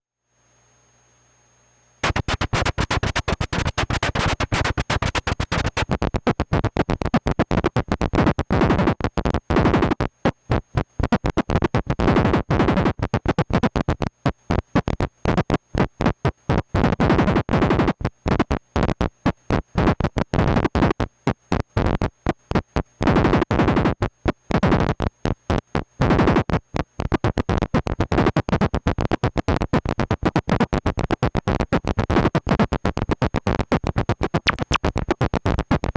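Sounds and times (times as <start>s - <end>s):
synthesizer stuttering noisy pulses: 2.0s - 9.0s, 33.6s - 35.9s.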